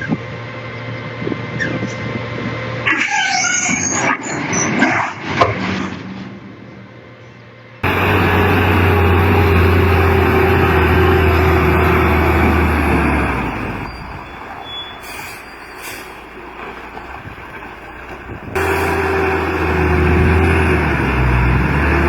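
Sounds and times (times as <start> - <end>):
truck engine running hard: 7.8 - 22.0.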